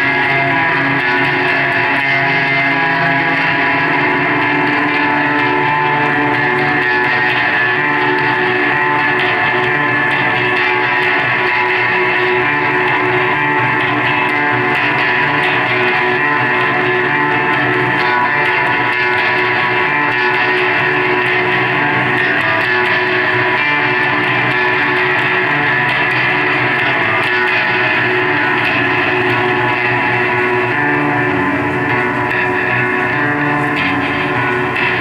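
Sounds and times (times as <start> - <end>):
electric guitar chords: 0.0 - 35.0.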